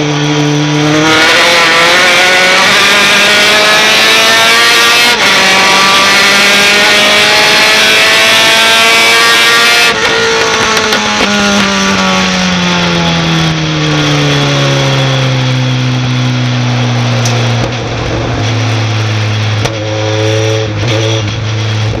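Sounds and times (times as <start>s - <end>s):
truck engine droning: 9.9s - 22.0s.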